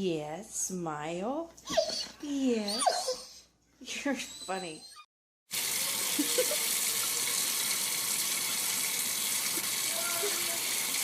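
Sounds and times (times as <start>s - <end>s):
running water rushing: 5.5s - 11.0s.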